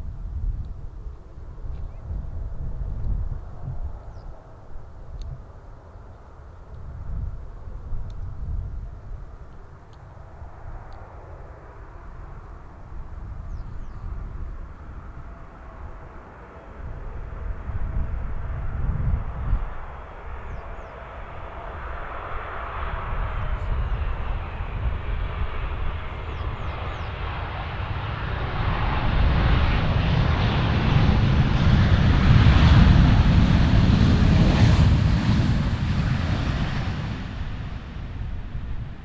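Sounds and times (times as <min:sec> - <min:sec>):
jet airliner passing: 0:10.3 - 0:39.0.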